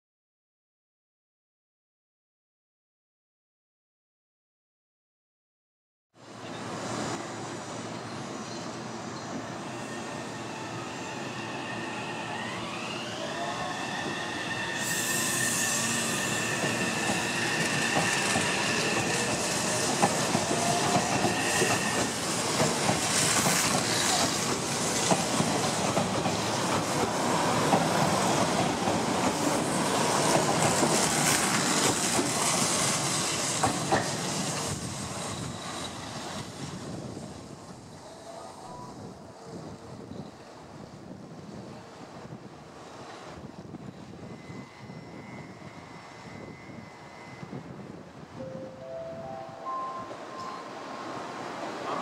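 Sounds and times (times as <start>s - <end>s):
wheel squeal: 9.6s - 19.9s, 20.6s - 22.2s, 43.9s - 47.8s
electric train drive whine: 9.9s - 20.0s, 43.6s - 48.3s
train wheel rumble: 12.4s - 38.1s.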